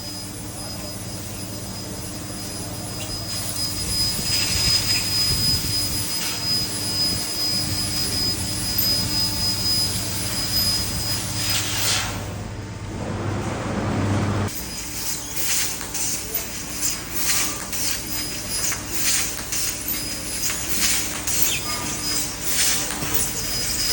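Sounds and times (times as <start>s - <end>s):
laser cutter hiss and hum: 0.0s - 12.6s, 14.4s - 23.9s
thin high whine: 0.0s - 12.9s, 14.4s - 23.9s.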